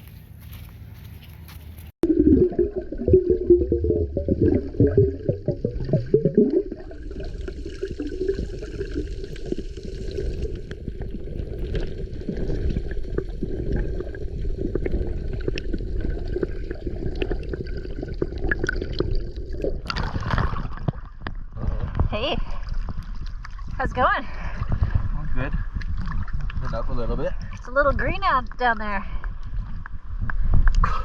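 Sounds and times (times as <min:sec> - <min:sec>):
water gurgling and bubbling: 0:02.0 - 0:28.2.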